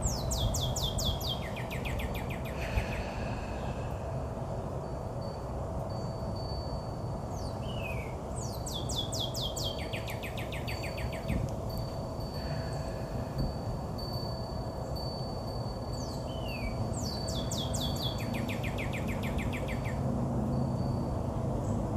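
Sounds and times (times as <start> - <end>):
songbird whistling and chirping: 0.0 - 3.0, 7.3 - 11.4, 16.0 - 20.0
low outdoor rumble: 0.0 - 21.9.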